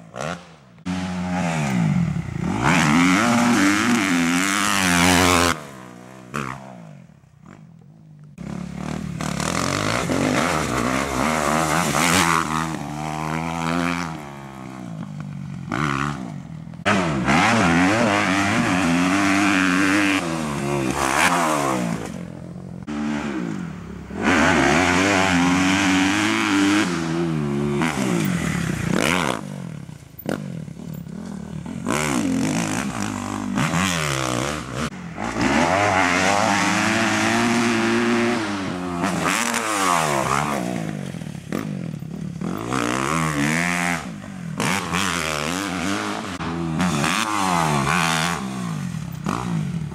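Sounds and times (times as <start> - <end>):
motocross engine revving: 0.0 - 7.7, 8.3 - 49.9.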